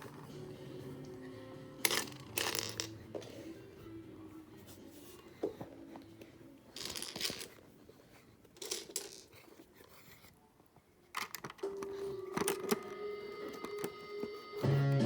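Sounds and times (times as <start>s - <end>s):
lego pieces rustling: 6.7s - 10.3s.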